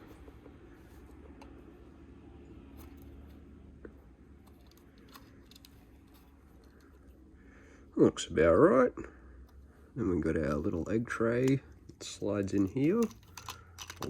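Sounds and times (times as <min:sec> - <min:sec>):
low room hum: 0:00.0 - 0:14.0
plastic bricks clicking together: 0:12.4 - 0:14.0.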